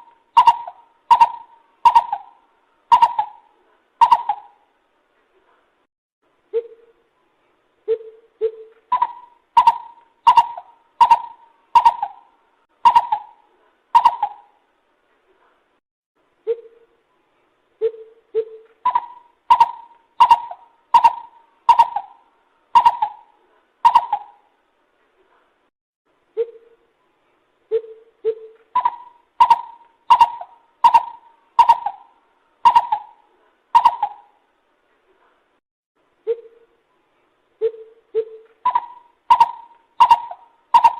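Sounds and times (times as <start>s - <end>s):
bird louder higher hoots: 0.0s - 4.6s, 7.9s - 13.4s, 14.0s - 14.6s, 17.8s - 22.2s, 22.8s - 24.4s, 27.7s - 33.2s, 33.8s - 34.4s, 37.6s - 40.9s.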